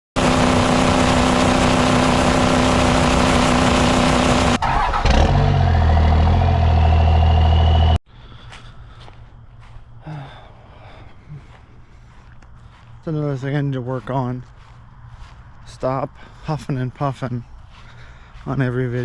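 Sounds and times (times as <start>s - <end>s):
diesel engine at high revs: 0.2s - 8.0s
rising turbo whine: 0.2s - 8.0s.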